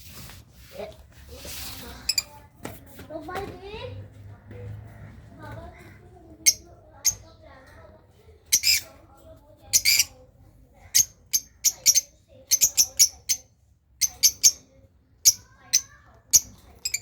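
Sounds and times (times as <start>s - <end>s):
lovebirds chirping: 8.4s - 9.0s, 9.7s - 17.0s.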